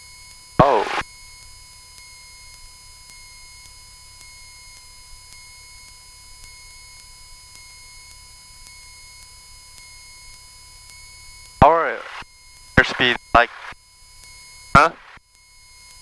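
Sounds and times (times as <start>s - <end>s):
electrical tones: 0.6s - 1.0s, 11.6s - 12.2s, 12.8s - 13.8s, 14.8s - 15.2s.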